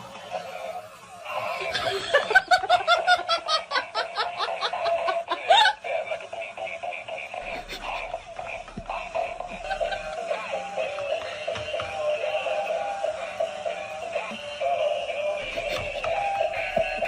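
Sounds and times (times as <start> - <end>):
high-pitched laughter: 1.3 - 10.6.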